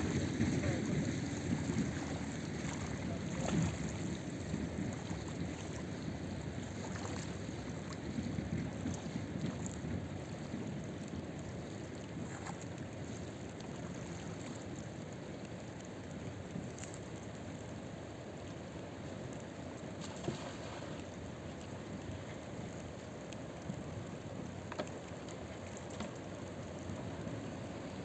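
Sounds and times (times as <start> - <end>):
river water rushing: 0.0 - 4.2
wind on microphone: 0.0 - 11.3.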